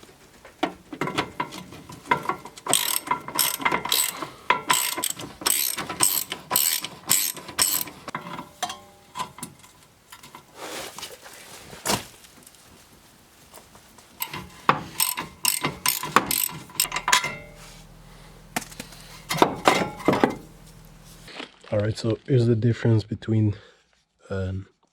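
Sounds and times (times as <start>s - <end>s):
ratchet wrench clicking: 2.6s - 8.1s, 14.2s - 21.3s.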